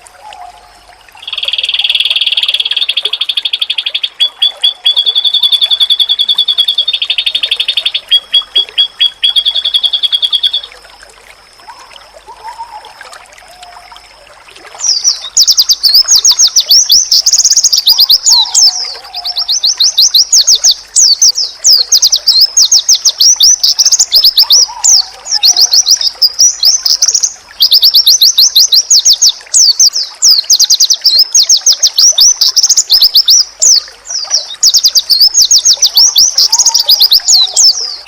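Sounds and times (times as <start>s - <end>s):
faint lower bird chirps: 0.2s - 10.9s
bird twittering song: 1.2s - 10.8s, 14.8s - 38.0s.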